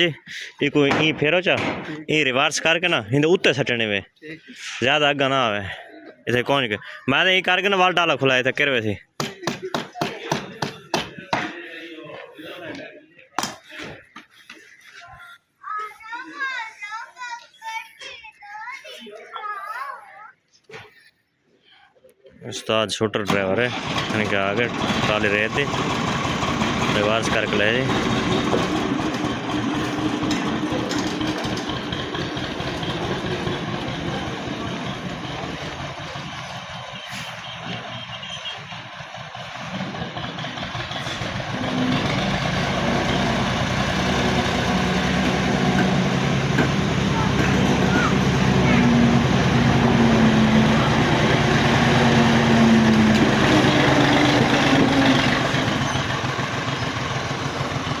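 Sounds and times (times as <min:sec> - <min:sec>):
tractor diesel engine at low revs: 0:23.3 - 0:58.0.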